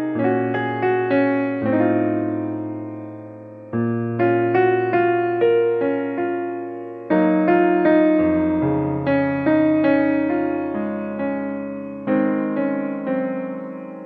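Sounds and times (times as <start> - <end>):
electric piano chords: 0.0 - 14.0.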